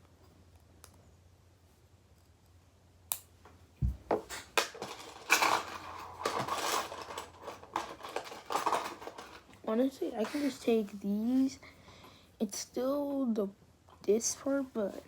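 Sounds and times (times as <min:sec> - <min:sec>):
metal parts clattering and tapping: 0:04.2 - 0:09.6
small metal parts clicking: 0:04.3 - 0:09.5.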